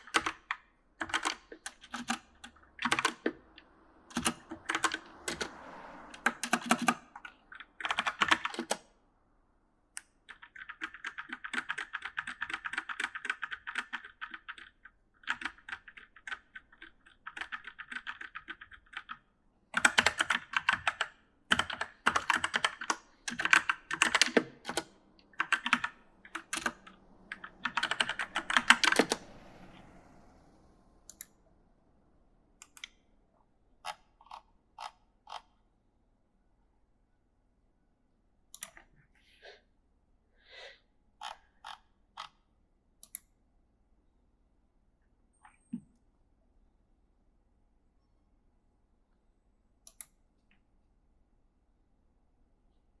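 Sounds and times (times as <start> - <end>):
mechanical keyboard typing: 0.0 - 3.4, 4.1 - 5.5, 6.2 - 8.8, 10.3 - 19.2, 19.8 - 29.2.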